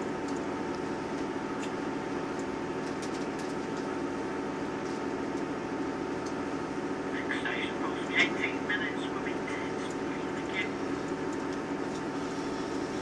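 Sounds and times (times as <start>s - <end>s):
diesel engine hum: 0.0s - 13.0s.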